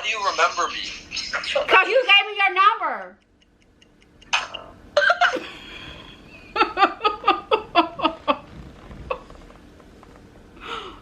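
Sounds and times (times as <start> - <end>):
person laughing: 6.5 - 9.3.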